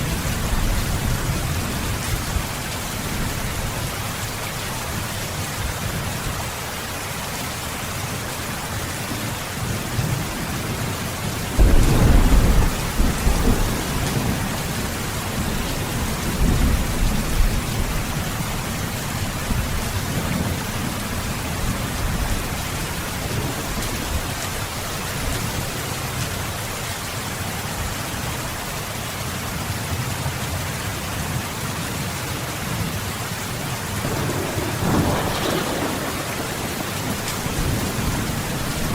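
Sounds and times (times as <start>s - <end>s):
heavy rain: 0.0s - 38.9s
thunder rumbling: 9.8s - 25.8s, 34.0s - 38.9s.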